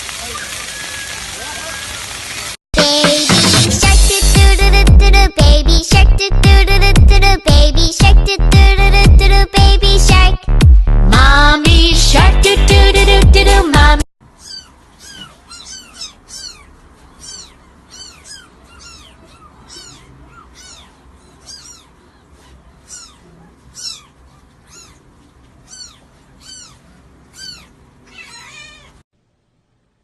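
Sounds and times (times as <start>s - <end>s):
kitten mewing: 14.4s - 29.0s.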